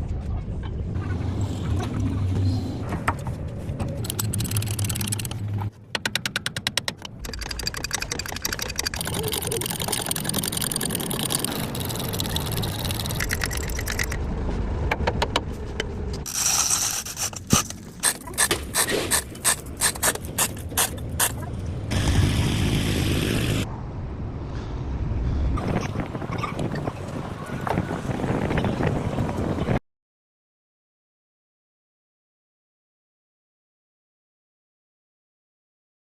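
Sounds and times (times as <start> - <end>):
steady mechanical noise: 0.4 - 23.7
rush of noise: 19.2 - 29.6.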